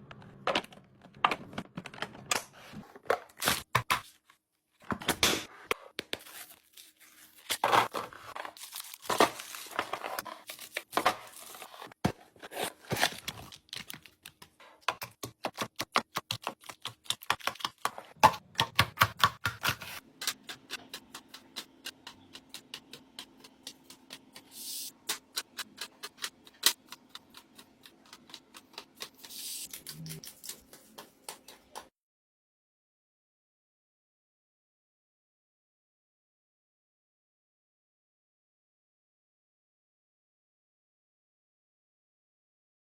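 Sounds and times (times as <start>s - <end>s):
plastic packaging crinkling: 6.2s - 11.9s, 12.5s - 14.5s.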